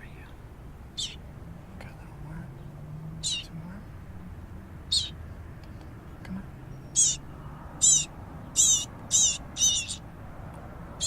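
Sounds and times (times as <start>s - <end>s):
baby bird chirping: 0.0s - 1.3s, 1.9s - 10.4s.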